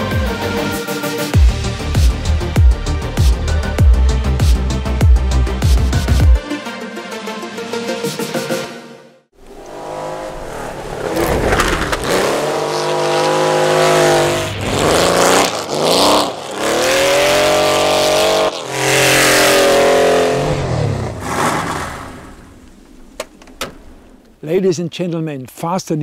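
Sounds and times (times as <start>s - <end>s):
rally car engine revving hard: 9.4s - 22.5s.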